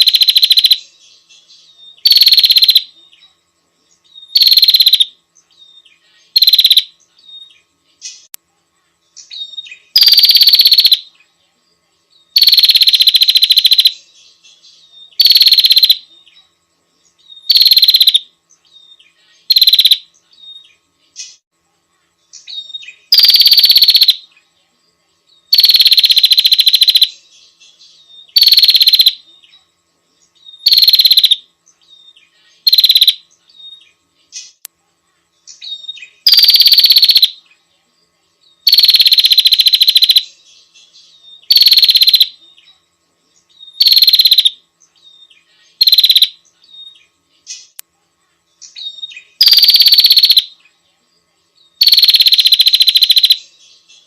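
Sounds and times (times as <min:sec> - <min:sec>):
bird rapid trills: 0:00.0 - 0:01.0, 0:02.0 - 0:02.9, 0:04.2 - 0:05.2, 0:06.2 - 0:07.0, 0:09.2 - 0:11.1, 0:12.3 - 0:16.1, 0:17.3 - 0:18.3, 0:19.3 - 0:20.1, 0:22.3 - 0:24.3, 0:25.5 - 0:27.6, 0:28.2 - 0:29.2, 0:30.5 - 0:31.5, 0:32.5 - 0:33.3, 0:35.5 - 0:37.4, 0:38.6 - 0:42.4, 0:43.6 - 0:44.6, 0:45.7 - 0:46.5, 0:48.7 - 0:50.6, 0:51.8 - 0:54.0.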